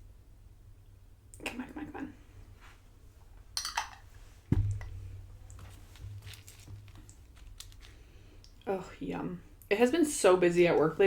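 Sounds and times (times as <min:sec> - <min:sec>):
tortilla chips crunching: 0:05.6 - 0:08.4.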